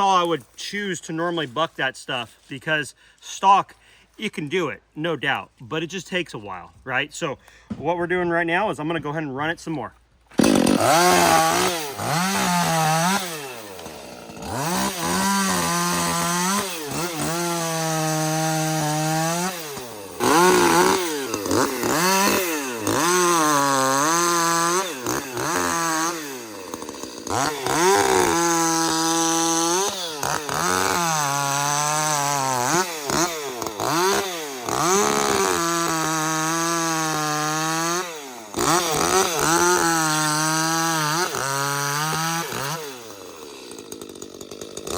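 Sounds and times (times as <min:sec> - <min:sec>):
chainsaw revving while cutting: 0:10.3 - 0:44.9.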